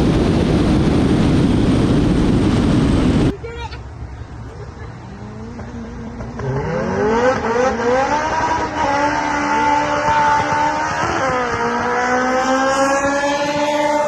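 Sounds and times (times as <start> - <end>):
race car engine accelerating: 5.0 - 14.0.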